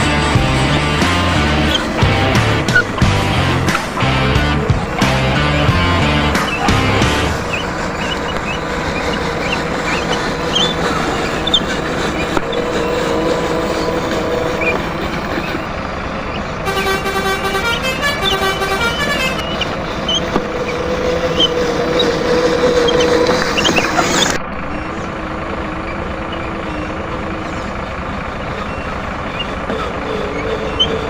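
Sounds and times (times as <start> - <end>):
horn toots: 0.0 - 15.7, 16.3 - 24.4
truck engine running: 0.0 - 31.0.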